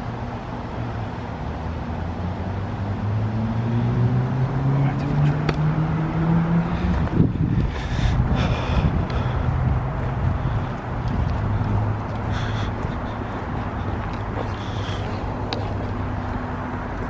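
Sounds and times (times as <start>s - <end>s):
heat pump rushing with low hum: 4.8s - 17.0s.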